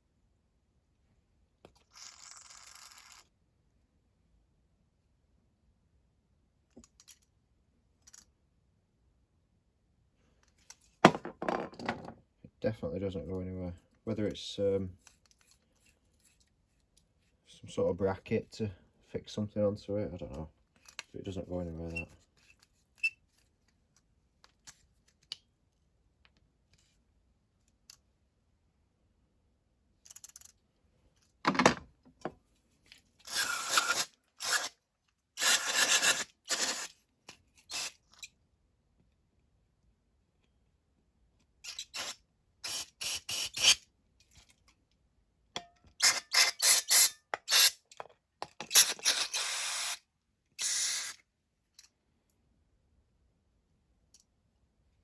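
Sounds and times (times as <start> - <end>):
small metal parts clicking: 30.0 - 30.6
spray can hissing: 50.6 - 51.2.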